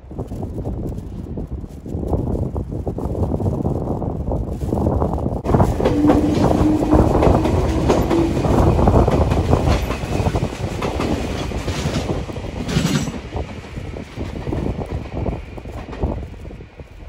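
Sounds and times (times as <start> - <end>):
electric train passing: 5.5 - 17.0.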